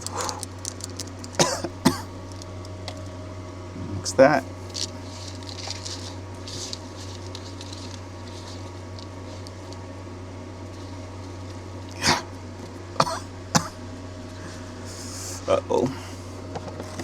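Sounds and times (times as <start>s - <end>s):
low hum: 0.0s - 17.0s
man coughing: 1.4s - 2.1s, 12.0s - 12.3s, 13.0s - 13.8s.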